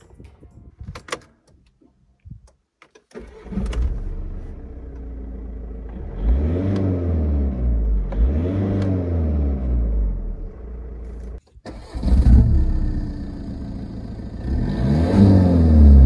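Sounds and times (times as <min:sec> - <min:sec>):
car engine cranking and idling: 0:00.0 - 0:16.0
clicks before engine start: 0:02.8 - 0:04.0
car engine revving: 0:03.4 - 0:16.0.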